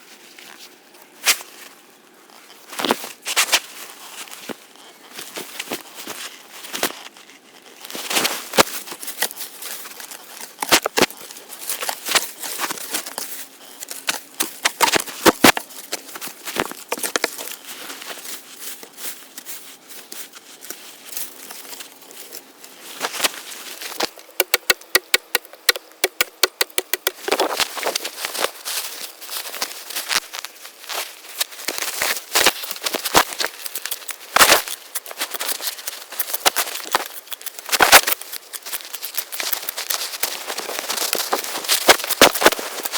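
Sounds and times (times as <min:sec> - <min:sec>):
leaves rustling and crinkling: 0:00.0 - 0:42.9
sticks snapping: 0:24.0 - 0:28.0, 0:32.4 - 0:42.9.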